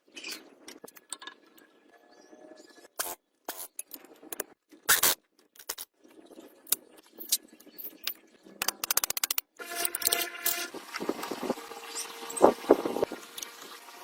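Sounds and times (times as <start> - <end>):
metallic clicks and knocks: 8.6 - 10.2.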